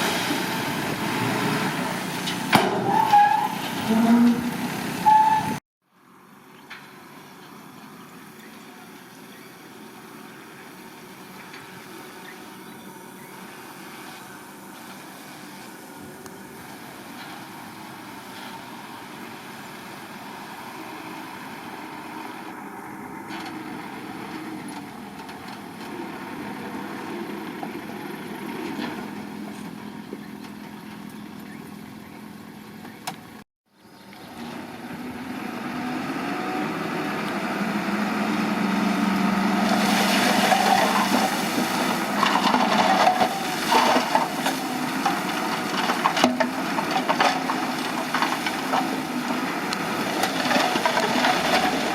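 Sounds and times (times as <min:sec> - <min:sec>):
bulldozer diesel engine: 0:00.0 - 0:51.9
rock and earth crunching: 0:38.2 - 0:51.9.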